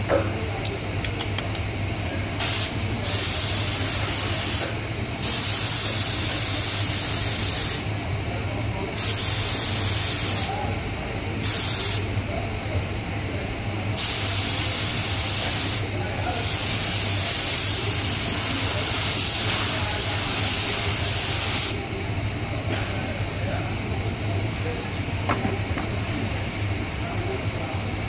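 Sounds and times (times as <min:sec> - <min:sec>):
compressed air hissing: 0:02.4 - 0:07.9, 0:09.0 - 0:10.6, 0:11.4 - 0:12.1, 0:14.0 - 0:21.8.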